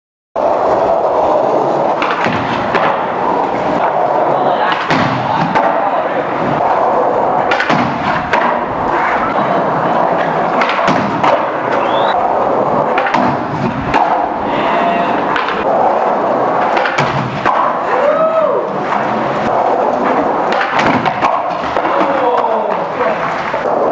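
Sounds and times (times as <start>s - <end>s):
skate wheels rolling and grinding: 0.4s - 23.9s.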